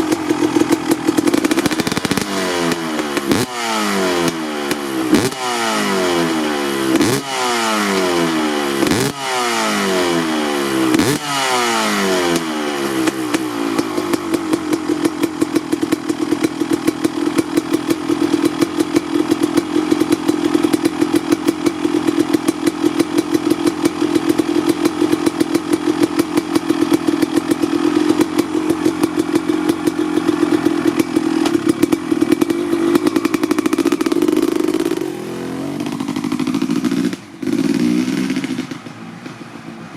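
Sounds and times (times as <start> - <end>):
motorcycle engine revving: 0.0 - 39.9
two-stroke engine idling: 0.0 - 39.9.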